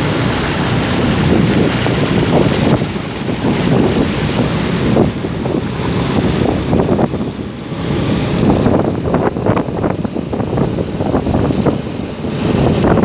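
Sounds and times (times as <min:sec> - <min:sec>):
wind buffeting the microphone: 0:00.0 - 0:13.0.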